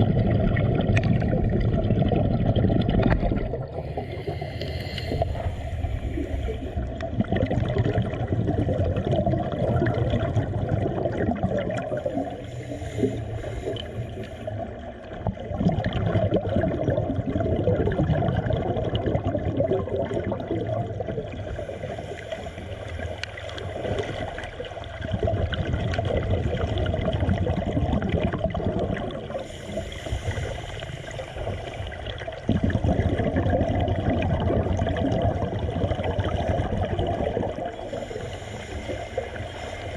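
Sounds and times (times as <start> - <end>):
water gurgling and churning: 0.0 - 39.9.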